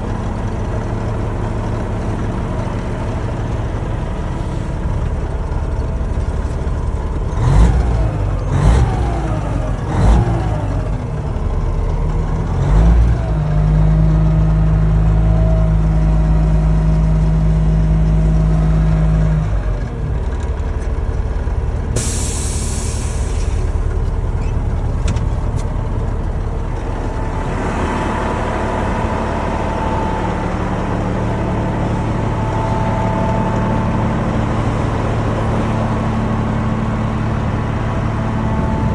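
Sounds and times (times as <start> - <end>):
diesel truck engine revving: 0.0 - 38.9
air hiss: 22.0 - 23.7.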